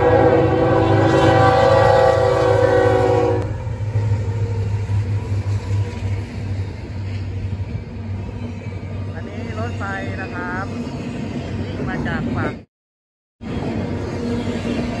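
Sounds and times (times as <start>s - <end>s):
locomotive air horn blast: 0.0s - 3.5s
train rumbling past: 0.0s - 12.7s, 13.4s - 15.0s.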